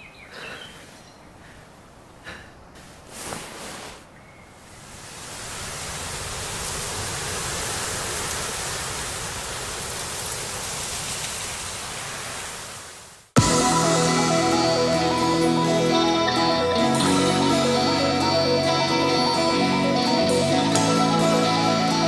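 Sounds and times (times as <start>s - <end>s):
music: 13.4s - 22.0s.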